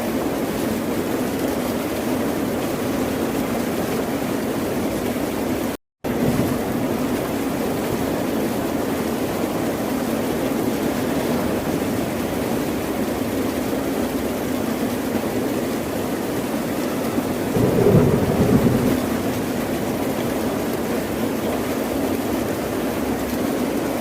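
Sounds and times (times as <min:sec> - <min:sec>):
ocean waves breaking: 0:17.5 - 0:20.6.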